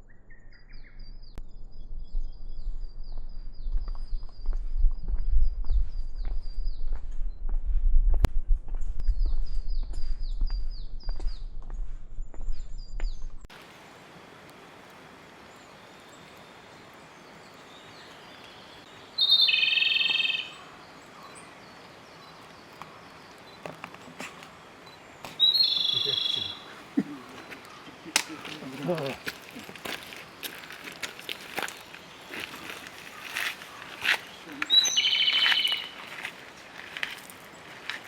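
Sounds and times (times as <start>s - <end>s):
low rumble: 1.0s - 13.5s
birds chirping: 15.1s - 38.0s
loud bird call: 19.2s - 20.7s, 25.4s - 29.2s, 33.1s - 36.0s.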